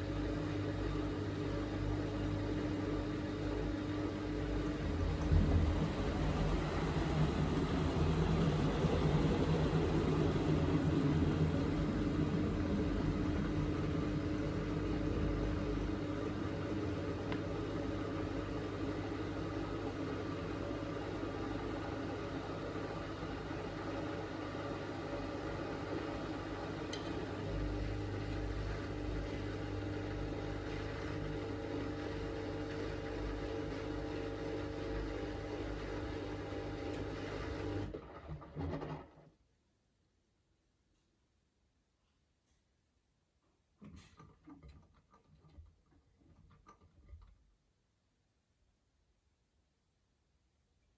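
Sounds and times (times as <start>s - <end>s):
washing machine drum spinning: 2.8s - 13.8s.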